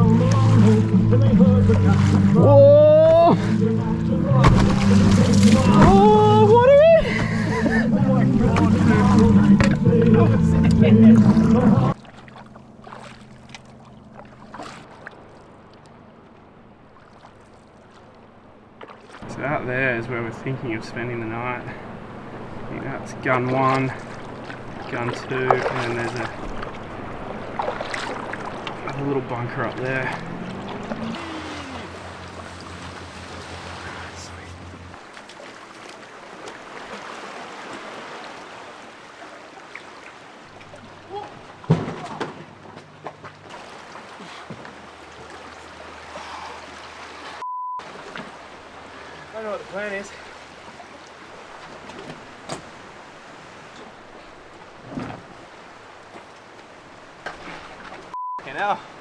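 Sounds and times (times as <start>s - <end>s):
soft splashes: 0.0s - 2.5s, 4.3s - 59.0s
low hum: 0.0s - 17.1s, 19.2s - 35.0s
water lapping: 0.0s - 59.0s
canoe knocks: 4.3s - 7.4s, 22.2s - 31.2s, 41.2s - 43.6s, 51.6s - 52.9s, 54.7s - 55.4s, 57.2s - 58.1s.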